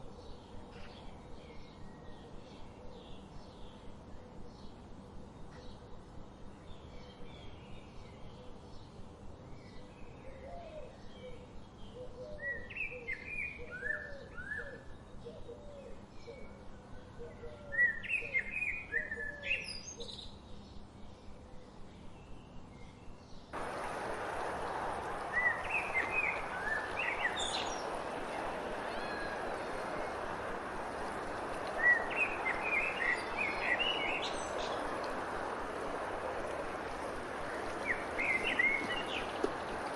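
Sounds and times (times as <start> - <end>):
birds singing and chirping: 23.6 - 39.9
lower bird call: 23.6 - 39.9
steady hiss: 23.6 - 39.9.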